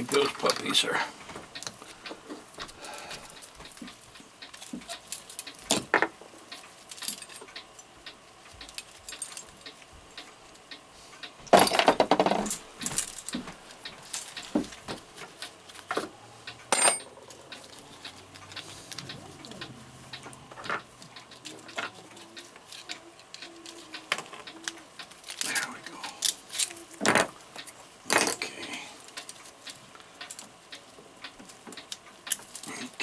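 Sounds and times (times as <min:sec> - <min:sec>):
metal clock parts clinking: 0:03.3 - 0:10.3, 0:11.2 - 0:33.0
high metallic ring: 0:16.7 - 0:17.2.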